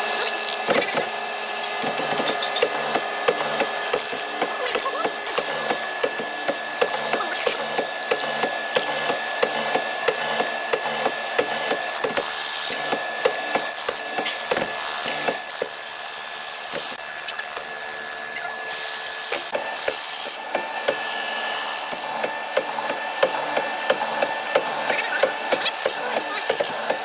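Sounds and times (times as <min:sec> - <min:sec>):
power tool whining: 0:00.0 - 0:27.0
sharp clicks and knocks: 0:01.8 - 0:15.8.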